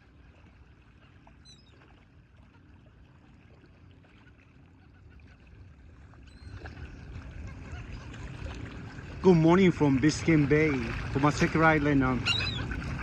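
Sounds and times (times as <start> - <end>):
wind and water rumble: 0.0 - 13.0
high bird calls: 12.2 - 12.7.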